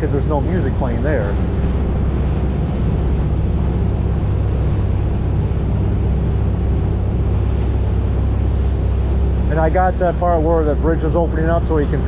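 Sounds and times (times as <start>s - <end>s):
boat engines droning: 0.0s - 12.0s.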